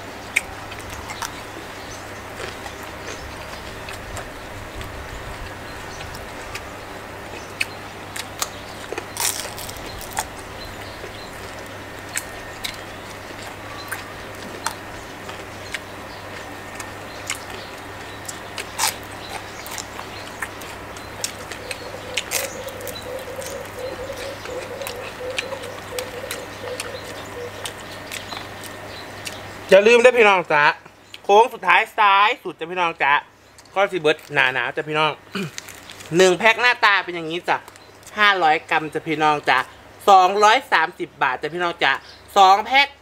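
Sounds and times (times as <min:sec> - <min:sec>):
steady low hum: 0:00.0 - 0:43.0
chewing crispy fried fish: 0:02.2 - 0:29.5, 0:35.3 - 0:36.2
sharp crunches and smacks: 0:07.3 - 0:29.4, 0:35.3 - 0:36.2.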